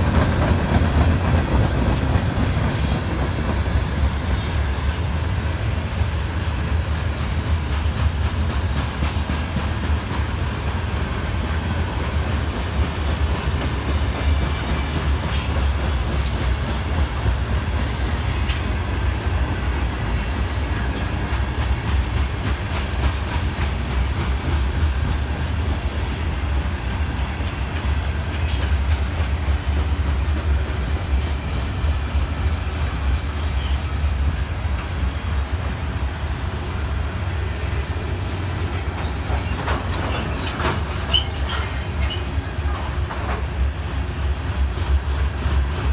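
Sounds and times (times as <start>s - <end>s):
wheels clicking over rail joints: 38.2s - 43.7s.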